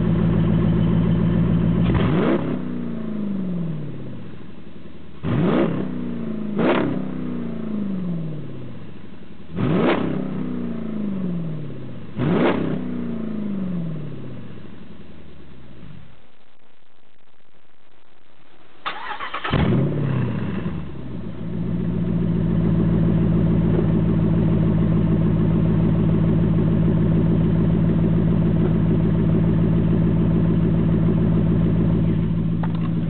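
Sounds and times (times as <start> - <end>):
engine revving and idling: 0.0 - 4.3, 5.2 - 8.9, 9.5 - 14.7, 18.9 - 33.0
engine starter cranking: 18.8 - 19.9.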